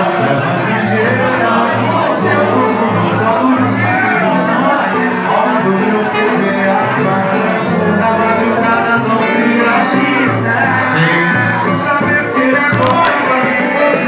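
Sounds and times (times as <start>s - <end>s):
band playing a song: 5.7s - 14.0s.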